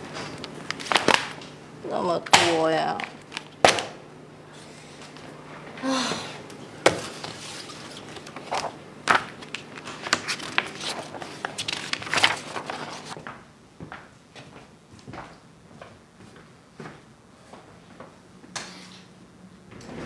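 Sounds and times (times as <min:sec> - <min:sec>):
woman huffing: 0:05.8 - 0:06.4
clicks taps and rustles of papers: 0:06.9 - 0:16.0.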